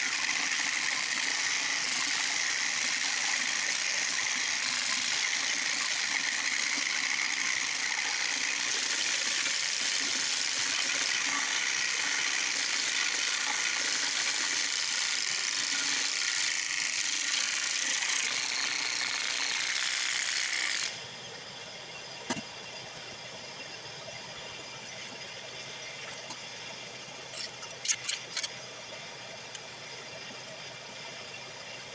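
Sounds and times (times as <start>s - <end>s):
drum sander and shop vac hissing: 0.0s - 21.0s.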